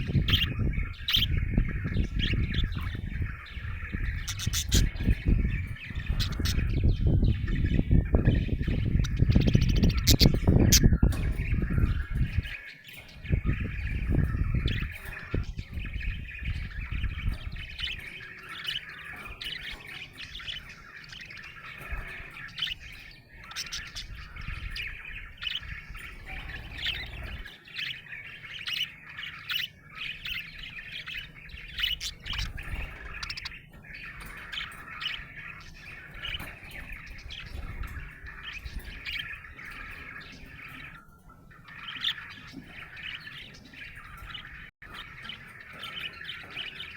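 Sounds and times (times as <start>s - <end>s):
budgerigar chirping and warbling: 0.0s - 41.0s.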